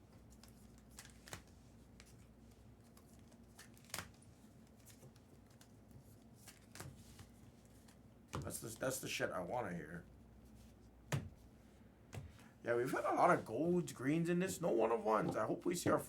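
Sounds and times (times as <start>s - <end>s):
trading cards clicking and rustling: 0.2s - 5.8s.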